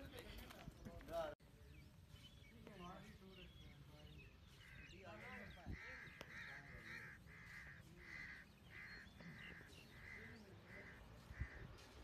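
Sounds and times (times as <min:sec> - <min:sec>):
bird harsh call: 0:04.2 - 0:11.9.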